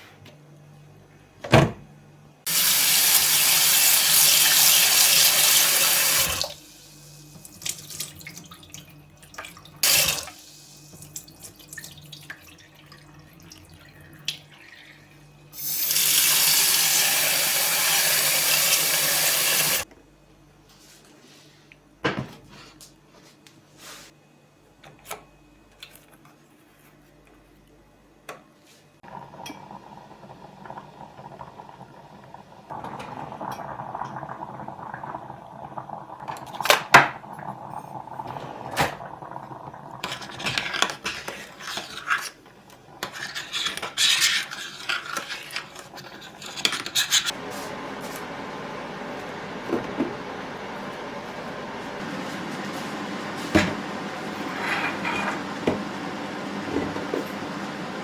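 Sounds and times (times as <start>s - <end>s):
dishes and cutlery clattering: 54.5s - 55.4s.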